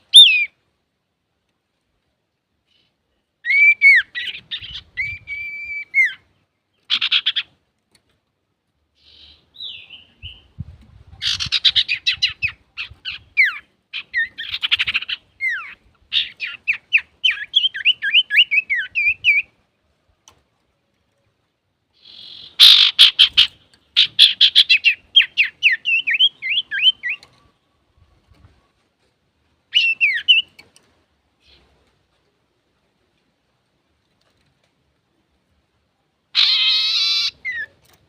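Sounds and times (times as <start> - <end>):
bird singing whistles and rattles: 3.4 - 6.2, 22.2 - 27.5, 29.7 - 30.7.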